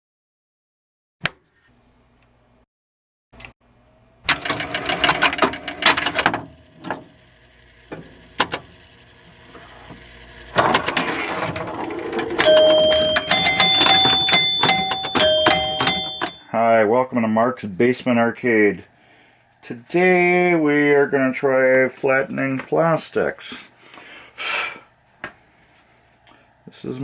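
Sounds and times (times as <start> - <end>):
steady ringing tones: 11.9 - 16.6.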